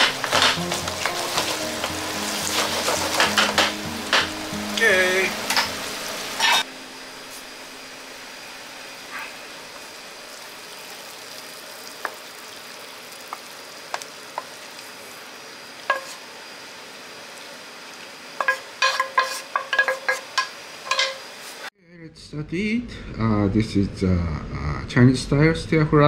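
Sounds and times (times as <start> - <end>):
spatula scraping and tapping pan: 0.0 - 4.3, 15.9 - 16.2, 18.4 - 21.2
food sizzling: 0.0 - 21.7.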